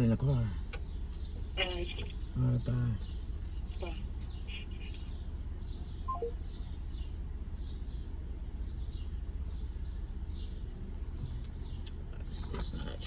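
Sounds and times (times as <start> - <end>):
small bird chirping: 0.7 - 10.6
falling three-note phone beep: 6.1 - 6.4.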